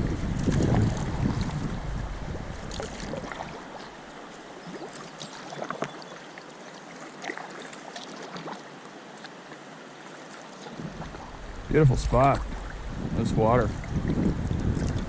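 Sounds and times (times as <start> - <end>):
wind rumble on microphone: 0.0 - 4.1, 10.8 - 15.0
river water lapping and trickling: 0.0 - 15.0
small splashes and drips: 2.7 - 11.2.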